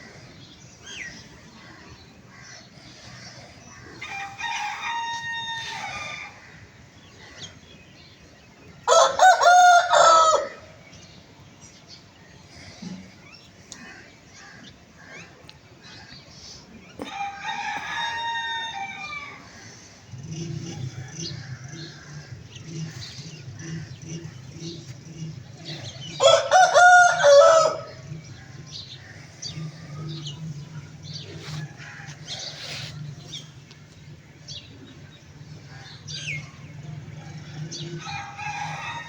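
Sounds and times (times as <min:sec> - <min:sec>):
rooster crowing: 0:04.0 - 0:06.4, 0:08.9 - 0:10.7, 0:17.0 - 0:19.5, 0:26.1 - 0:28.5, 0:37.7 - 0:39.0.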